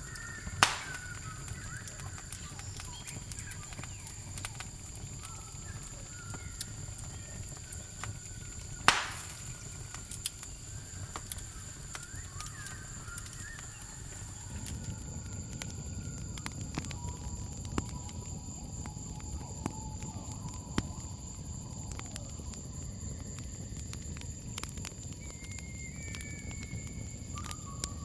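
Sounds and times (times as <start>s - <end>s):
campfire crackling and snapping: 0.0s - 28.0s
crickets chirring: 0.0s - 28.0s
loud pop: 0.6s - 1.4s, 8.8s - 9.8s.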